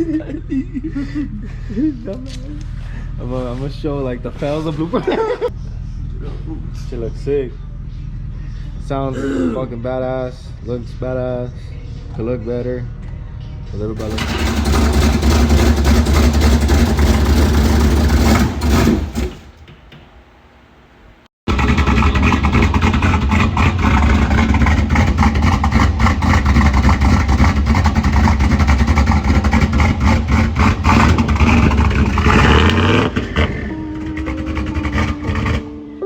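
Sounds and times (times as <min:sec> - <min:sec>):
loud truck engine running: 0:14.0 - 0:19.7, 0:21.5 - 0:36.0.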